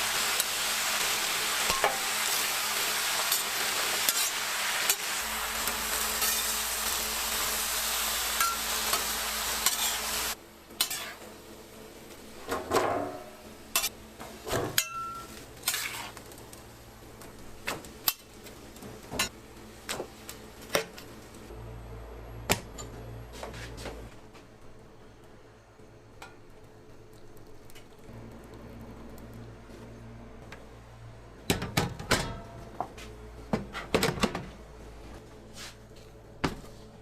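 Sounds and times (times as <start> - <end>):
food sizzling on a griddle: 0.0 - 11.3, 13.7 - 19.3.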